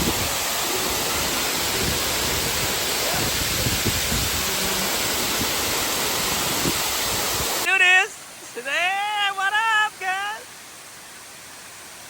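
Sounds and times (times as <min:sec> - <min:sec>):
wind buffeting microphone: 0:00.0 - 0:07.7
waterfall rushing: 0:00.0 - 0:12.0.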